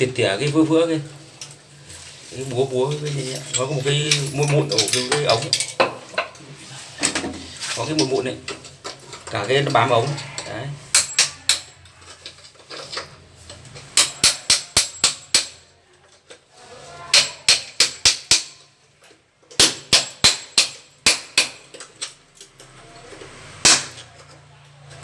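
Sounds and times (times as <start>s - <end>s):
hammer chipping mortar off pipe: 14.0s - 15.6s, 17.1s - 18.6s, 19.6s - 21.7s.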